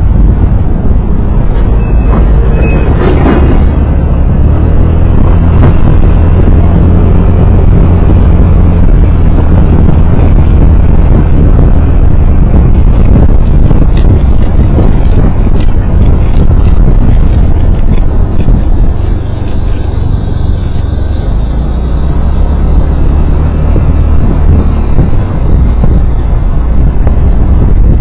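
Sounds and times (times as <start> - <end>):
road and wind noise: 0.0 - 28.0
vehicle engine hum: 0.0 - 28.0.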